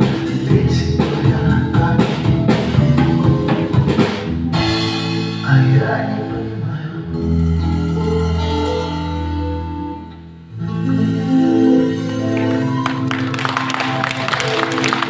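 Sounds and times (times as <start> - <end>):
drum beat: 0.0 - 5.3
guitar chords: 0.0 - 15.0.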